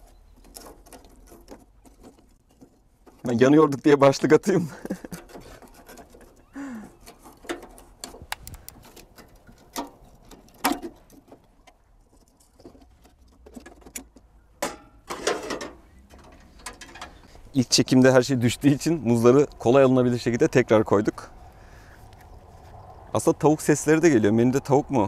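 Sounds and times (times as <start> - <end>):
small clicks and knocks: 0.0 - 3.9, 5.0 - 17.4.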